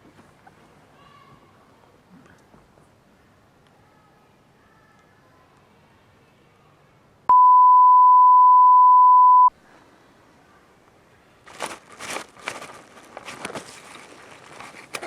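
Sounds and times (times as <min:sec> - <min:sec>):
high-pitched beep tone: 0:07.3 - 0:09.5
rustling crunches: 0:11.4 - 0:15.0.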